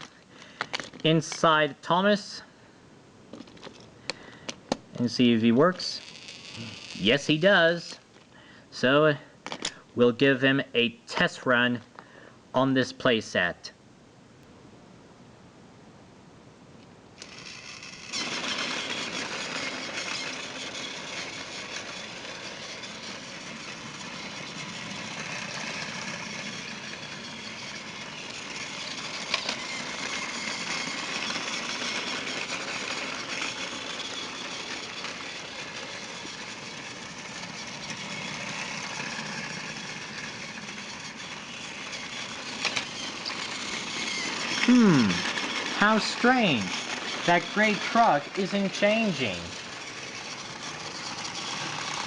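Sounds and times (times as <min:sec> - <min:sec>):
toy train motor whirring: 0:00.0 - 0:01.5, 0:05.7 - 0:08.0, 0:17.2 - 0:52.0
wheels rattling on plastic track: 0:00.0 - 0:01.5, 0:05.8 - 0:07.4, 0:17.2 - 0:52.0.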